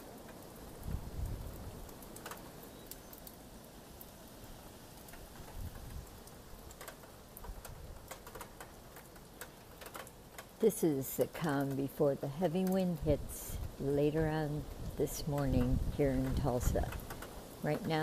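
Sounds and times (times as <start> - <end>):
steady rain falling: 0.0 - 18.0
wind buffeting microphone: 0.8 - 1.9, 5.4 - 6.2, 13.0 - 18.0.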